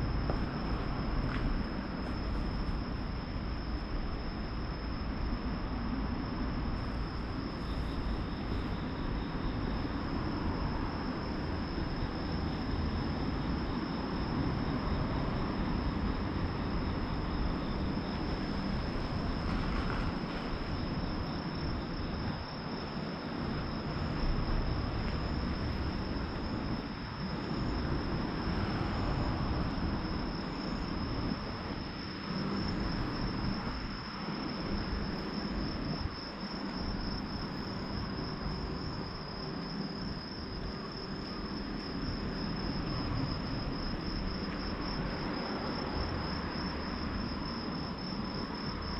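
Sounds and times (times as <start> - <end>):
crickets trilling: 0.0 - 48.9.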